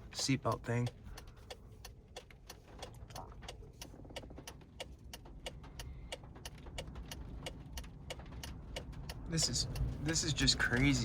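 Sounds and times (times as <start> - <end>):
small things ticking on car body: 0.1 - 11.0
storm wind buffeting a car: 4.0 - 11.0.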